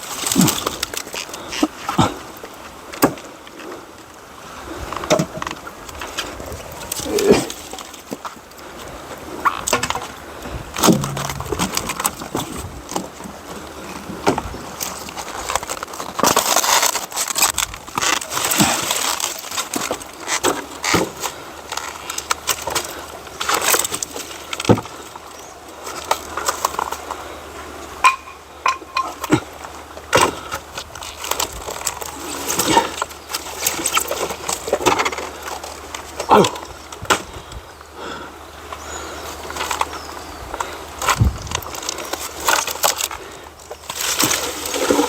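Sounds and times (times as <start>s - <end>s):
dry branches crackling and snapping: 0.0s - 3.7s, 10.8s - 25.1s, 25.7s - 27.3s, 28.0s - 37.4s, 39.4s - 45.0s.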